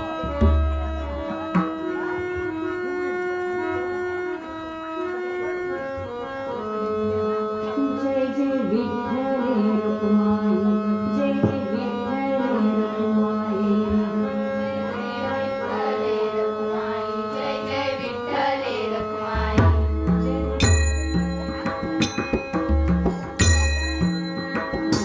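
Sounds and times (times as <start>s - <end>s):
tabla strokes: 0.1s - 2.6s, 19.0s - 25.0s.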